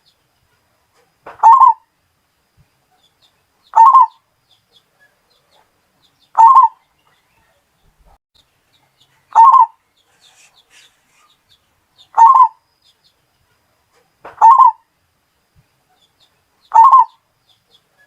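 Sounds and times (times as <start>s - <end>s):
small birds chirping: 0.0s - 18.0s
dove cooing: 1.4s - 1.8s, 3.8s - 4.2s, 6.4s - 6.8s, 9.3s - 11.3s, 12.1s - 12.6s, 14.4s - 14.8s, 16.7s - 17.2s.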